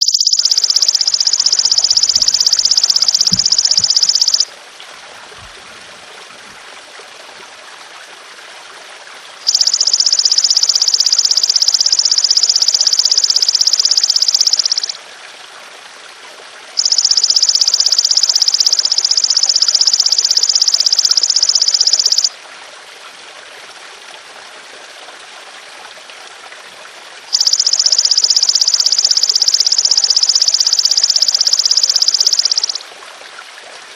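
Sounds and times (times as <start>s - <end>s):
insect buzzing trills: 0.0s - 4.5s, 9.5s - 15.0s
trickle of running water: 0.0s - 33.9s.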